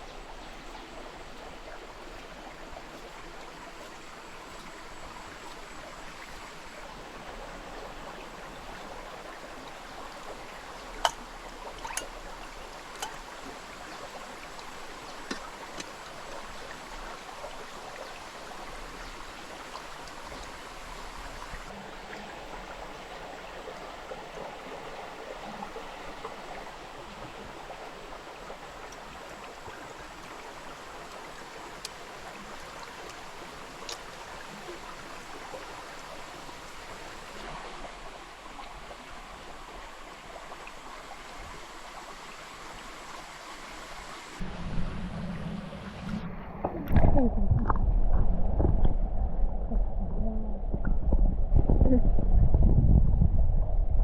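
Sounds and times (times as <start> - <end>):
stream water running: 0.0 - 49.7
faint ticks: 31.0 - 34.8.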